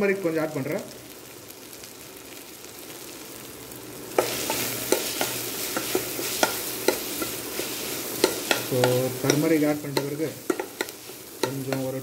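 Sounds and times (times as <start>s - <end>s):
onions sizzling in a pot: 0.0s - 12.0s
spoon knocking against pot: 10.0s - 11.9s.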